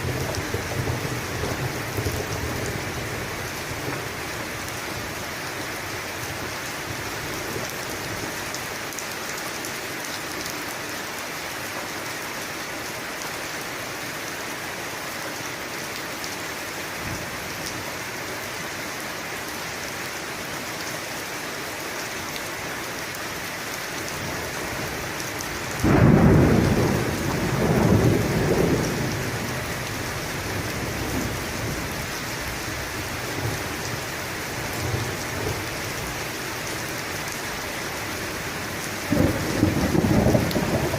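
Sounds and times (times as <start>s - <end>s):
thunder clap and rumble: 0.0s - 4.2s, 25.8s - 32.0s, 39.0s - 40.9s
steady rain falling: 0.0s - 40.9s.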